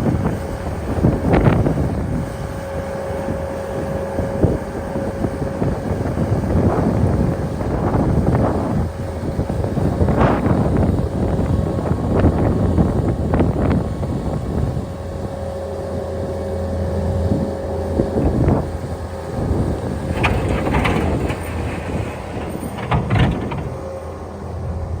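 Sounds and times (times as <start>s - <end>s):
snow-clearing machine engine: 14.2s - 25.0s
clanks and scrapes: 19.9s - 24.3s.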